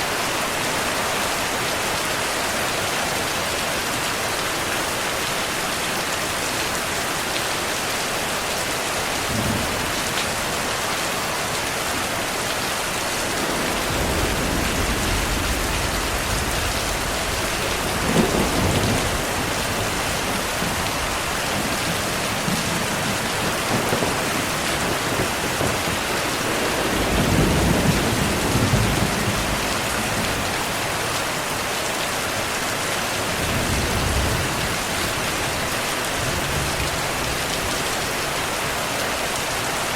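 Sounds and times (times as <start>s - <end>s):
heavy rain: 0.0s - 39.9s
thunder rolling: 12.9s - 30.6s.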